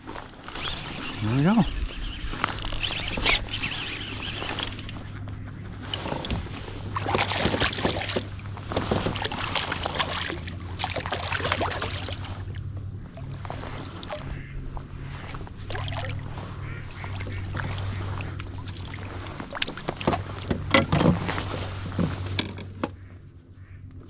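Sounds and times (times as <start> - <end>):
water splashing: 0.0 - 22.3
steady low hum: 0.0 - 24.0
fishing reel clicking: 0.4 - 5.1.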